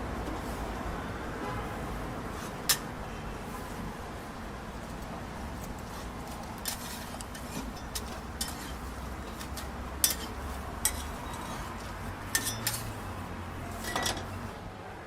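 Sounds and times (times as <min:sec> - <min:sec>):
metal utensils clinking on dishes: 0:06.6 - 0:12.9, 0:13.6 - 0:14.4.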